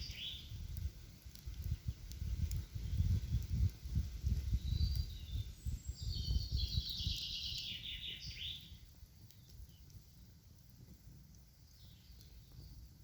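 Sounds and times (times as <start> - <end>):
songbird trilled song: 0.0 - 0.6, 1.7 - 3.7, 4.3 - 10.0, 11.7 - 12.8.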